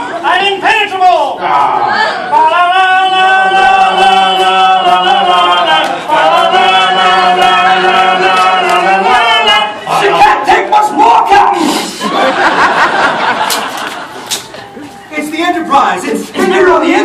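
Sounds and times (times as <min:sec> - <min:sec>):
men singing held chords: 0:02.2 - 0:10.3.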